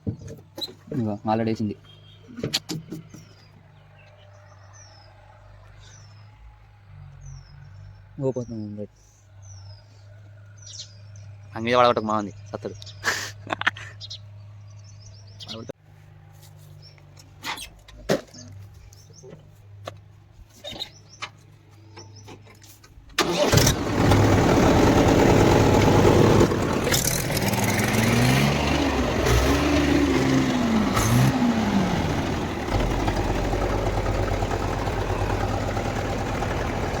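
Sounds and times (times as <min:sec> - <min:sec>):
tractor diesel engine running: 0:23.2 - 0:37.0.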